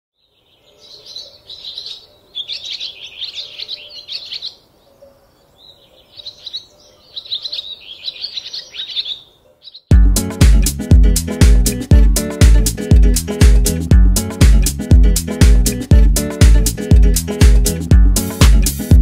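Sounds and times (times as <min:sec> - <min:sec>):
songbird chirping: 0:00.1 - 0:09.9.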